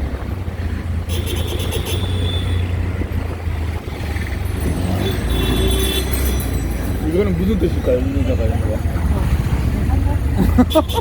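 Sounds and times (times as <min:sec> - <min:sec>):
auto-rickshaw engine rumbling: 0:00.0 - 0:11.0
high-pitched ringing: 0:04.5 - 0:07.4.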